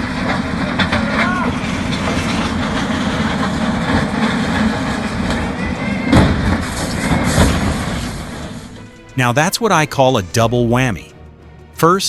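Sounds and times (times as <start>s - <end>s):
heavy vehicle rumble and clatter: 0.0s - 9.4s.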